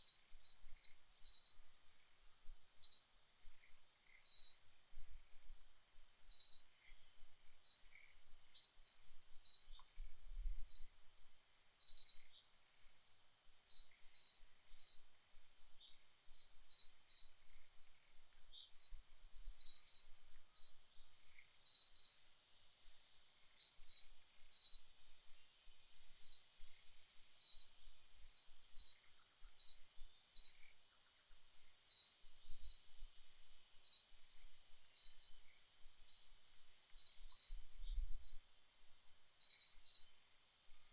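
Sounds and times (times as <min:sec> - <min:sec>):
bird chirping: 0:00.0 - 0:01.7, 0:02.4 - 0:04.7, 0:06.1 - 0:10.0, 0:10.6 - 0:11.0, 0:11.8 - 0:12.6, 0:13.7 - 0:15.1, 0:15.8 - 0:22.2, 0:23.6 - 0:26.7, 0:27.4 - 0:33.0, 0:33.8 - 0:34.2, 0:34.8 - 0:38.5, 0:39.2 - 0:40.2
faint steady high hiss: 0:00.0 - 0:40.9.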